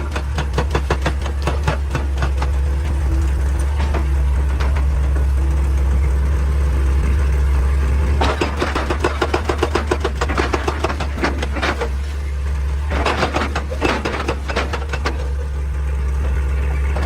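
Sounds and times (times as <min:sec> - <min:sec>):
sharp clattering knocks: 0:00.0 - 0:02.9, 0:08.2 - 0:11.9
diesel engine running: 0:00.0 - 0:17.0.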